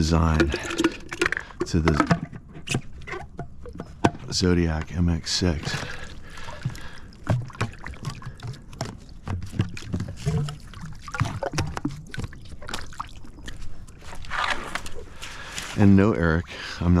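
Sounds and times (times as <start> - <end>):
water sloshing and splashing: 0.0 - 17.0
hollow plastic knocks and clicks: 0.3 - 5.0, 6.6 - 12.0.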